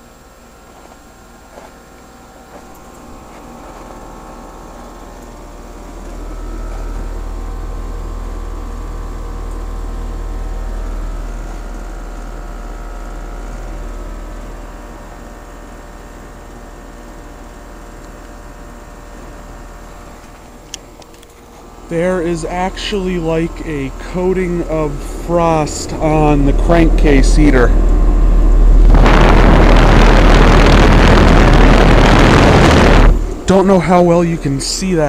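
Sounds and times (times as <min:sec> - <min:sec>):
heat pump compressor and fan humming: 0:00.0 - 0:35.0
low rumble: 0:02.6 - 0:14.1, 0:24.6 - 0:33.6.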